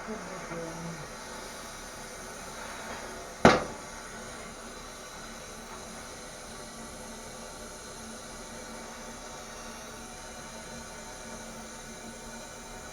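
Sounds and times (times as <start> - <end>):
sharp knock: 3.5 - 3.8.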